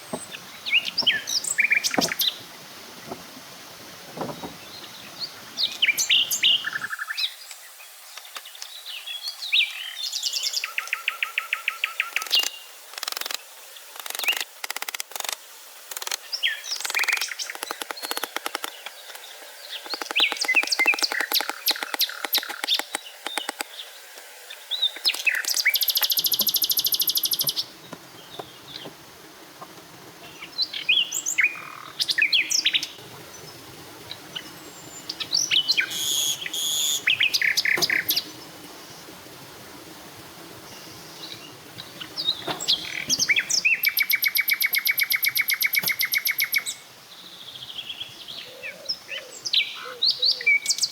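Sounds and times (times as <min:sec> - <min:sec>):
birds chirping and trilling: 0:00.0 - 0:07.4, 0:16.2 - 0:29.0, 0:30.2 - 0:39.2, 0:40.6 - 0:50.9.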